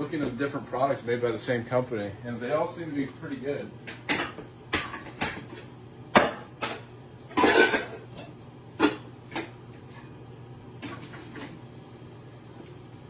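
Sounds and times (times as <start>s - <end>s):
steady low hum: 0.0s - 13.0s
pan and utensils clattering: 3.9s - 10.1s.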